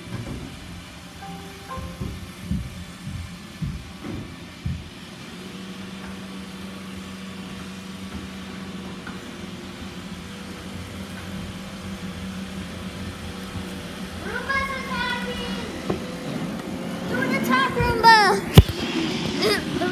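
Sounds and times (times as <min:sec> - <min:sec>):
knocks: 0:01.7 - 0:04.9.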